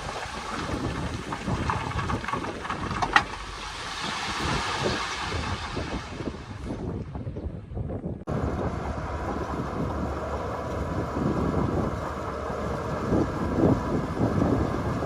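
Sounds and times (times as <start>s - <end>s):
wind buffeting microphone: 0.0s - 15.0s
diesel machinery engine rumble: 8.2s - 15.0s.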